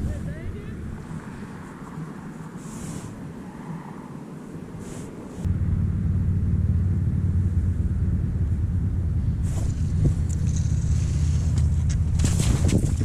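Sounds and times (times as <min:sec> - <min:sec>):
motor running with low hum: 0:05.5 - 0:12.5.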